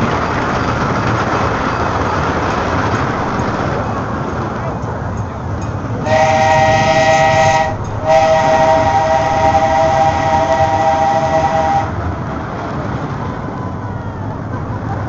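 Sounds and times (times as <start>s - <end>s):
train running rumble: 0.0s - 15.0s
steam train whistle: 6.0s - 12.0s.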